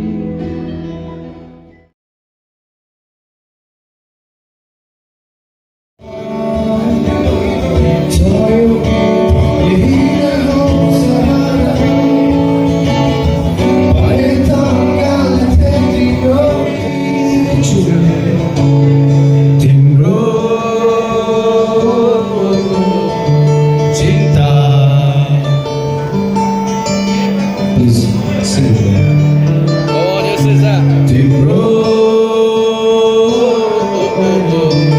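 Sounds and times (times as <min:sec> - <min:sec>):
strummed acoustic guitar: 0:00.0 - 0:01.9, 0:06.0 - 0:34.9
man singing: 0:06.0 - 0:26.2, 0:27.6 - 0:29.3, 0:29.9 - 0:34.9.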